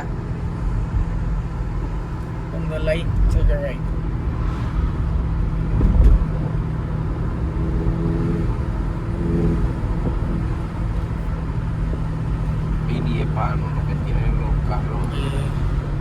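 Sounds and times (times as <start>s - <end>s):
car engine and road noise: 0.0s - 16.0s
heavy thump: 5.7s - 6.4s.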